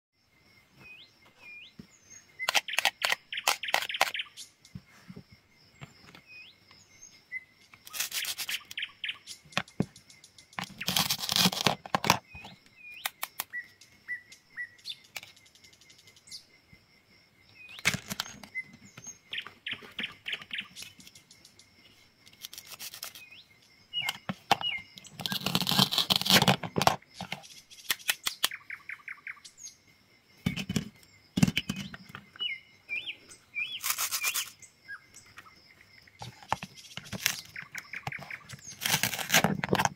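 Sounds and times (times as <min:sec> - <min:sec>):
small birds chirping: 0:00.2 - 0:39.9
sharp clicks: 0:02.4 - 0:04.2, 0:25.3 - 0:28.6
food crunching as cut: 0:10.6 - 0:12.2, 0:25.2 - 0:26.6, 0:38.2 - 0:39.9.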